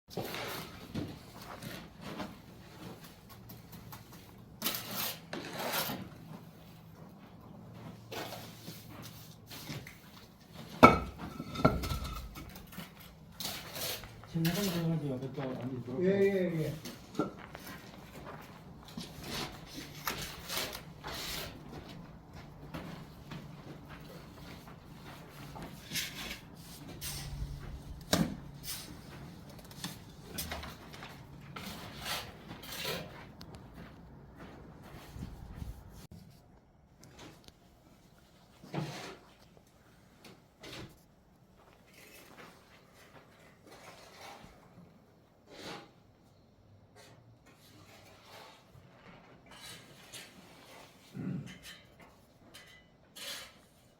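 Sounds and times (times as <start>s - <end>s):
plastering tools scraping: 0.1s - 6.6s, 8.0s - 15.2s, 16.8s - 22.0s, 24.1s - 33.4s, 38.6s - 39.6s, 41.9s - 53.9s
trowel scraping mortar: 4.6s - 6.2s, 11.4s - 14.9s, 19.0s - 21.7s, 31.6s - 33.2s, 42.0s - 44.8s, 45.4s - 46.0s, 47.0s - 52.1s, 52.7s - 53.9s.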